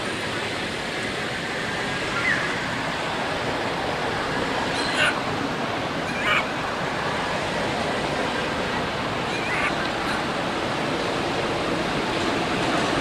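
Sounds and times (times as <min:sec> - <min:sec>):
steady outdoor hiss: 0:00.0 - 0:13.0
baby monkey squealing cries: 0:09.3 - 0:09.8.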